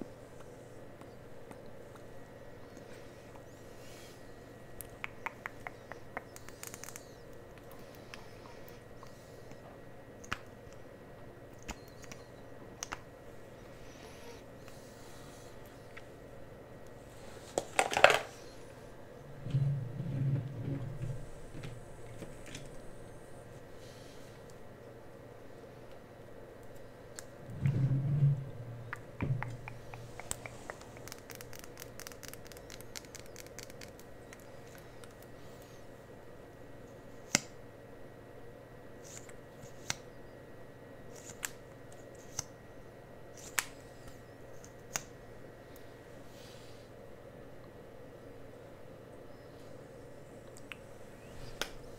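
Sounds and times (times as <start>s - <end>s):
soft low rubbing: 27.5s - 31.1s
sharp clicks and crackles: 28.9s - 35.3s.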